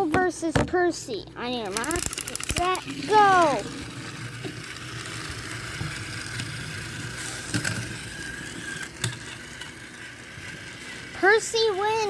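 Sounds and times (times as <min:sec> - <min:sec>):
toy train motor whirring: 0:01.4 - 0:12.0
sharp clicks: 0:01.7 - 0:03.0.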